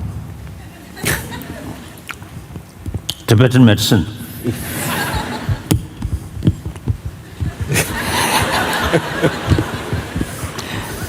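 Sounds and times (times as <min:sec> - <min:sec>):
people laughing: 0:00.6 - 0:02.1, 0:04.4 - 0:06.1, 0:07.2 - 0:11.0.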